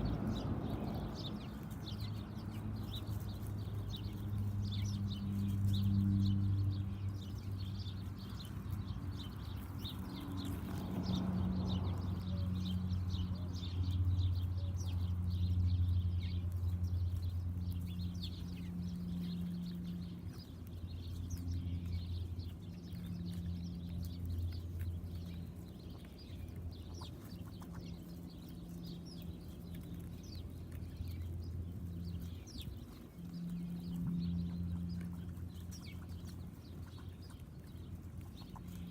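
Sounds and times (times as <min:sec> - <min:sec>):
steady low hum: 0:00.0 - 0:12.2
small birds chirping: 0:00.0 - 0:38.9.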